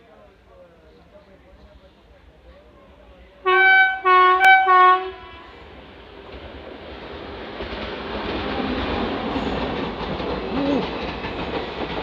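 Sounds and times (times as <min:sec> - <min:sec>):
train rumbling on rails: 0:01.6 - 0:12.0
locomotive horn blasts: 0:03.4 - 0:05.6.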